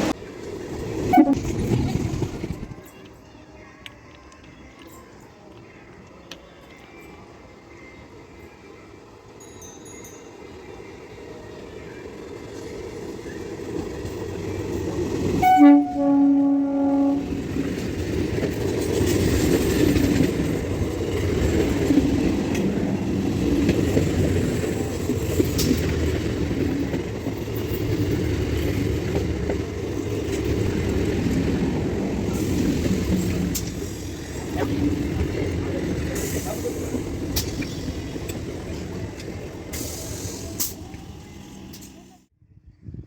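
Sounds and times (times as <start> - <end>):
train wheels rumbling on rail: 0.0 - 3.1, 11.2 - 42.3
train horn blast: 1.1 - 1.5, 15.4 - 17.5.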